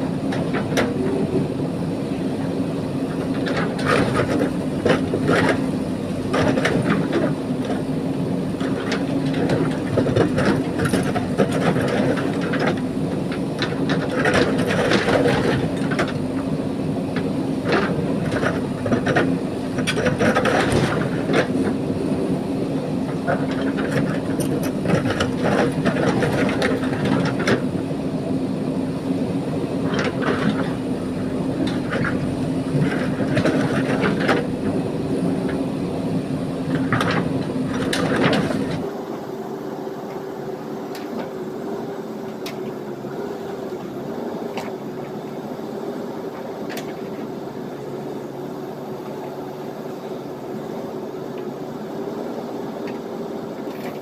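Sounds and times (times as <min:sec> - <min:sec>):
diesel engine running under load: 0:00.0 - 0:54.0.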